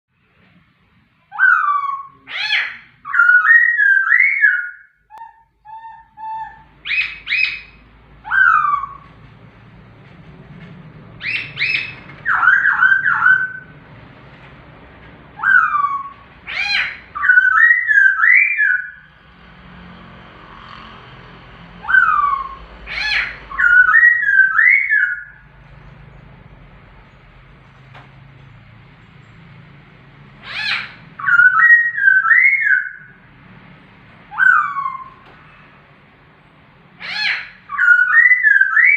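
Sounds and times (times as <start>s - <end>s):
bird singing whistled phrases: 1.3s - 9.0s, 11.2s - 13.7s, 16.8s - 19.1s, 21.8s - 25.4s, 31.2s - 33.1s, 37.7s - 38.9s.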